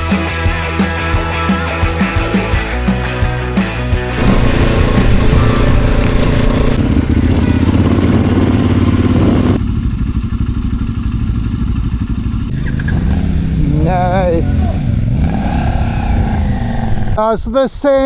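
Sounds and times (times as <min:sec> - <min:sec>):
motorcycle engine revving: 0:03.8 - 0:17.2.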